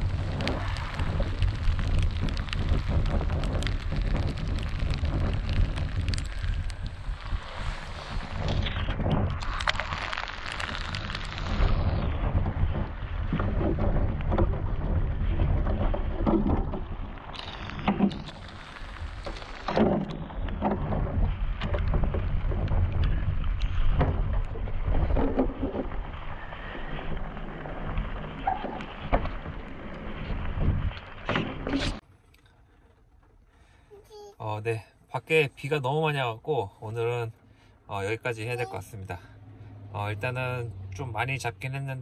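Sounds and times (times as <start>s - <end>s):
wind rumbling on microphone: 0.0s - 32.0s
rain: 0.0s - 42.0s.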